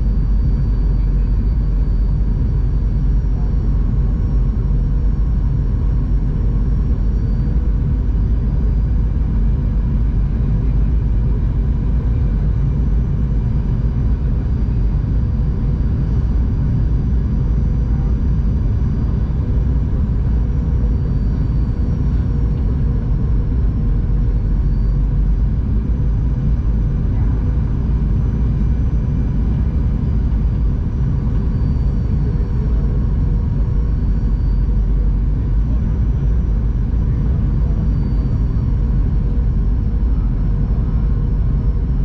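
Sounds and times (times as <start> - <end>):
airplane cabin engine drone: 0.0 - 42.0
faint steady hum: 0.0 - 42.0.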